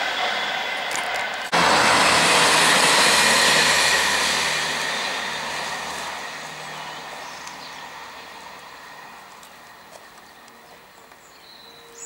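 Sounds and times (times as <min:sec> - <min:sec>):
low diesel engine drone: 0:00.0 - 0:11.9
train wheels rushing on rail: 0:00.0 - 0:12.0.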